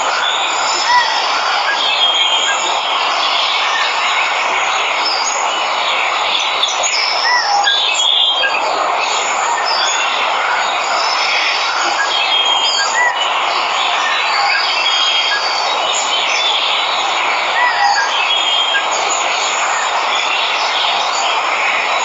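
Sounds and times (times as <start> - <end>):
waterfall hiss: 0.0 - 22.0
birds chirping and whistling: 6.4 - 19.2.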